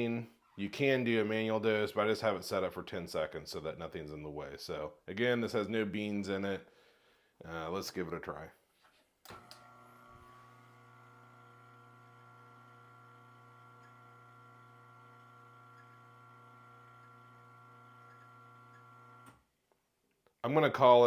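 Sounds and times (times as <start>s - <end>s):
grinder motor humming: 9.4s - 19.3s.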